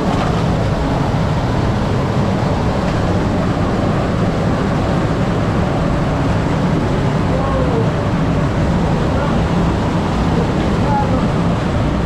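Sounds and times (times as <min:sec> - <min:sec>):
fast-flowing creek water: 0:00.0 - 0:12.0.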